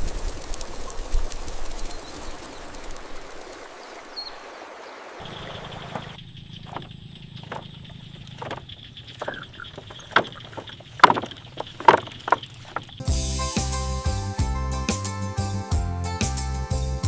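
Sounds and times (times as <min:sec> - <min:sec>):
knocks and clicks: 0:05.9 - 0:13.0
instrumental music: 0:13.0 - 0:17.0.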